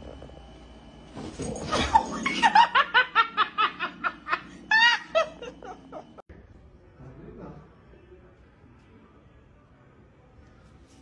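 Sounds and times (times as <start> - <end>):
high-pitched laughter: 1.7 - 6.2.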